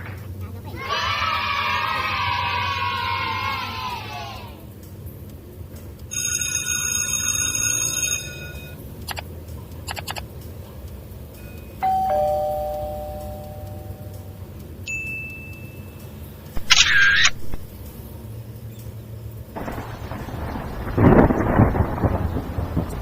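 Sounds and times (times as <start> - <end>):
low hum: 0.0 - 23.0
bell-like ring: 6.1 - 8.8, 11.4 - 14.3, 14.9 - 16.0
sharp clicks: 9.0 - 11.4, 15.3 - 18.0
two-note falling chime: 11.4 - 15.8.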